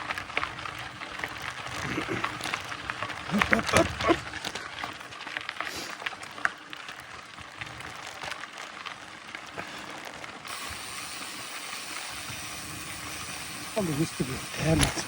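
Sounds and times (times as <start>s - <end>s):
bike ticks and rattles: 0.0s - 15.0s
steady hiss: 10.5s - 15.0s.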